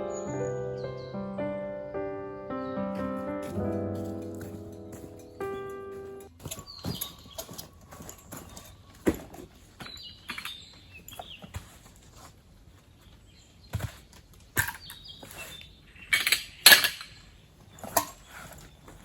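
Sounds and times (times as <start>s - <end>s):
birds chirping: 0.0s - 11.9s
camping gear knocks and clicks: 3.0s - 12.0s, 13.7s - 19.0s
rustling: 3.0s - 15.7s.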